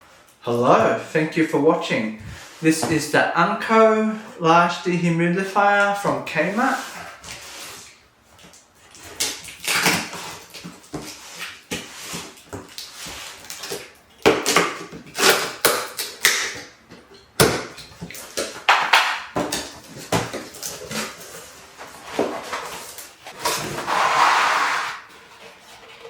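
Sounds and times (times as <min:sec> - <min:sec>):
sliding rush: 0:23.7 - 0:25.1.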